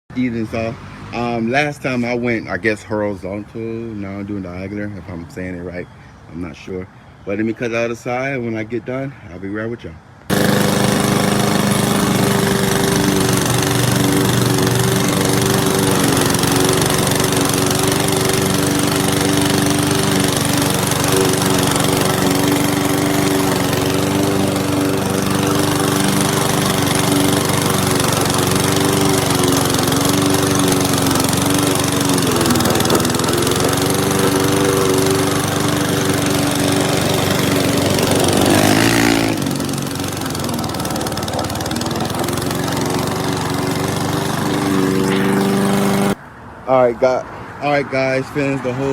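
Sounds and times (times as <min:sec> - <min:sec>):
lawn mower engine running: 0:10.3 - 0:46.2.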